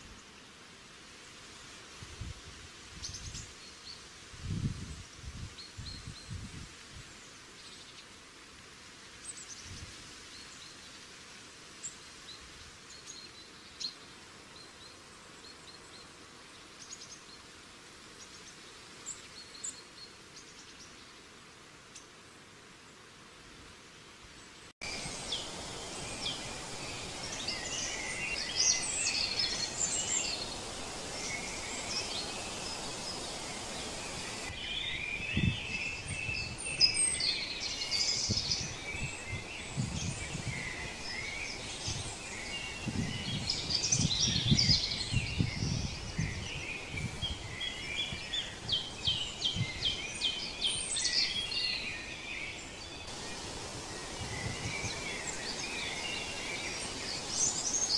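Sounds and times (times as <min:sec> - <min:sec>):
outdoor background hiss: 0:00.0 - 0:57.9
birds chirping and trilling: 0:24.8 - 0:57.9.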